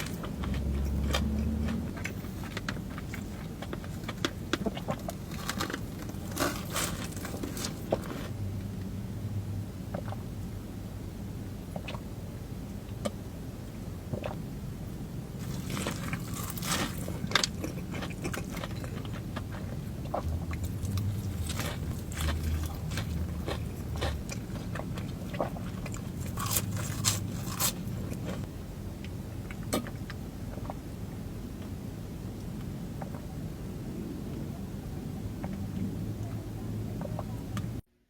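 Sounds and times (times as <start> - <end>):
person chewing crunchy food: 0.0 - 8.4, 15.4 - 30.8.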